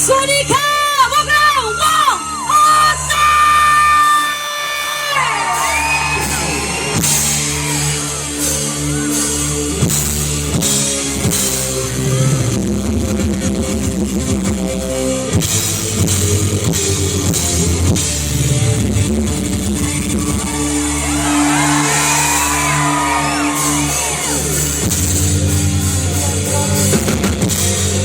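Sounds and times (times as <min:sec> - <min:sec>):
drum kit beating: 0:05.5 - 0:28.0.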